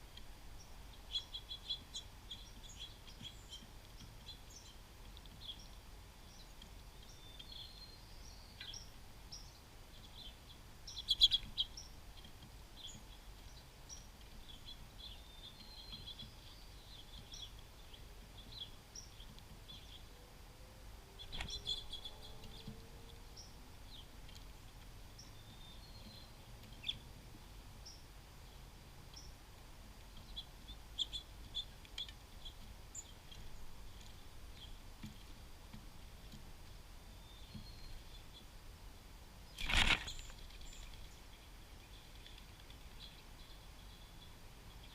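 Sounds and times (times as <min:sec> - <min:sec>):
songbirds chirping: 0:00.0 - 0:44.9.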